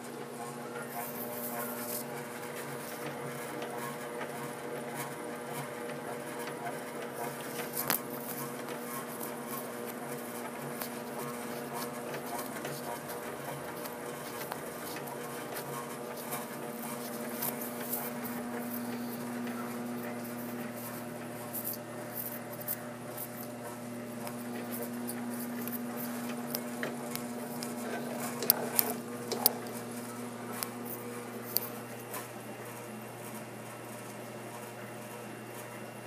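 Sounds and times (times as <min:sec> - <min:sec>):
electrical hum: 0:00.0 - 0:36.0
clicks and taps: 0:24.2 - 0:32.3.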